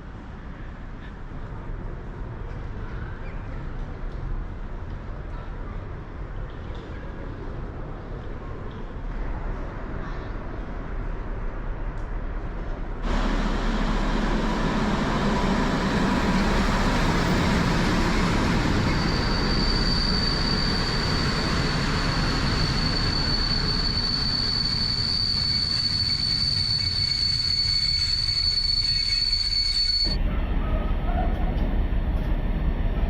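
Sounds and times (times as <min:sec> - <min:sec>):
train rumbling on rails: 0:00.0 - 0:33.0
high wheel squeal: 0:13.0 - 0:30.2.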